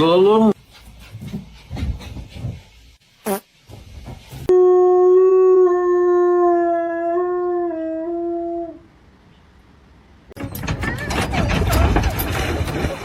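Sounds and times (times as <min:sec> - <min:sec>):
noise: 0:01.4 - 0:04.6.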